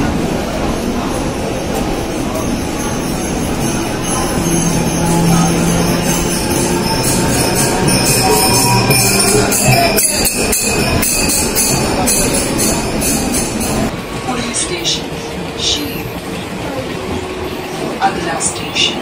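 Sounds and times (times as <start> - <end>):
train running noise: 0.0 - 19.0
rhythmic metallic jingling: 0.9 - 13.9.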